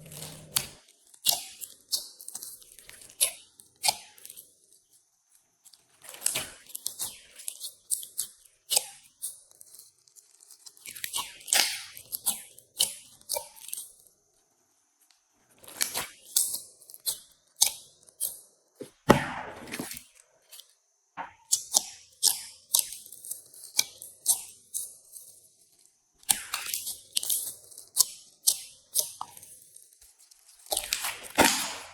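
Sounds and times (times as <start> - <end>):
slime crackling and popping: 30.7 - 31.9.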